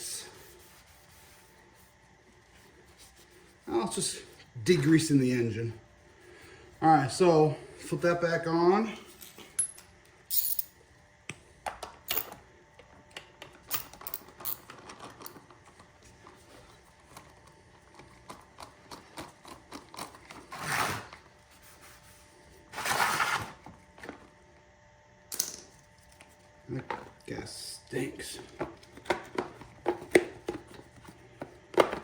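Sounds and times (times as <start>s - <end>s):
parts clicking and rattling: 13.2s - 15.8s.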